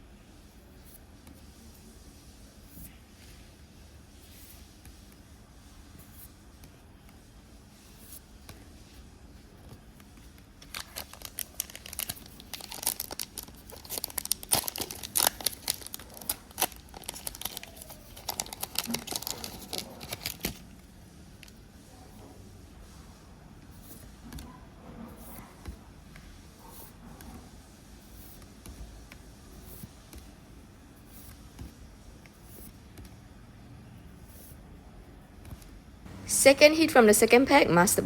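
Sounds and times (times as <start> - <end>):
foil wrapper tearing and crinkling: 10.6 - 20.6.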